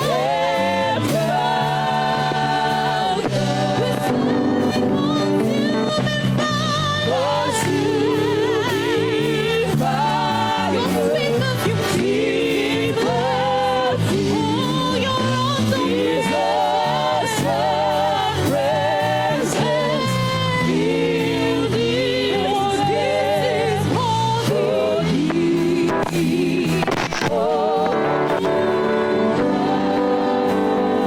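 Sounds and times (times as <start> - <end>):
sustained organ chords: 0.0 - 31.0
voices singing held notes: 0.0 - 31.0.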